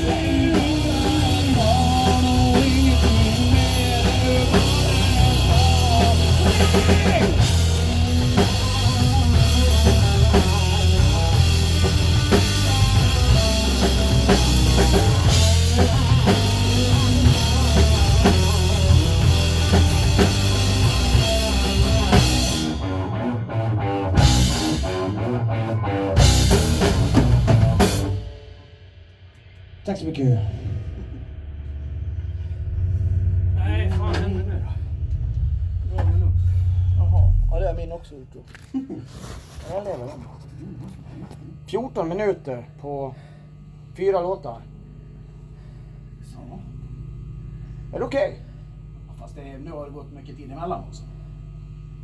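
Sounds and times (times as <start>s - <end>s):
person singing: 0.0s - 7.4s
rock band playing: 0.0s - 29.8s
loud band hits: 24.2s - 25.4s, 26.2s - 38.0s.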